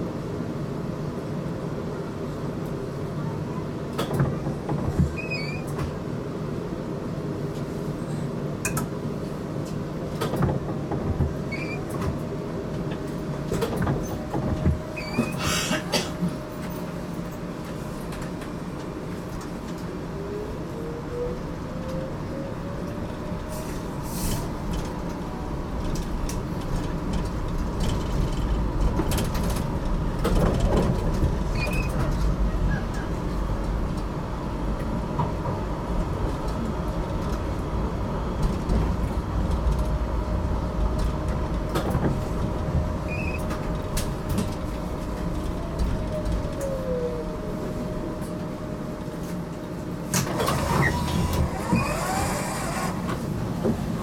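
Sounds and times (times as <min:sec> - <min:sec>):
tram running rumble: 0:00.0 - 0:54.0
high squealing of wheels: 0:05.1 - 0:05.8, 0:11.5 - 0:12.0, 0:14.9 - 0:15.6, 0:31.5 - 0:33.2, 0:43.0 - 0:43.6, 0:50.5 - 0:53.1
tram motor tone: 0:08.1 - 0:54.0.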